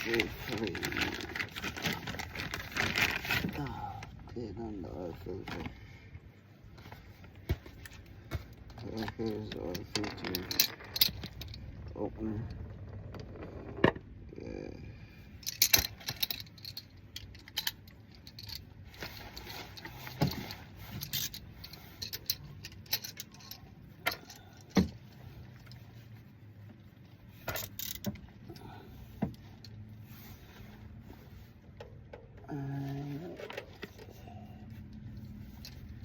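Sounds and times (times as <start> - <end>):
metal tools clinking: 7.7 - 11.7, 15.4 - 26.0.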